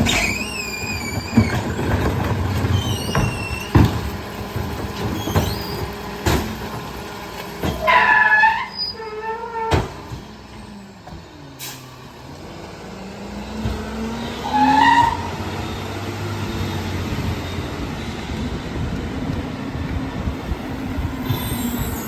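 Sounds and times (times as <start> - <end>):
high squeal: 0.0 - 2.0, 2.6 - 3.8, 5.1 - 5.8, 7.6 - 9.8, 14.1 - 18.4, 20.6 - 22.0
truck engine revving with whine: 0.0 - 22.0.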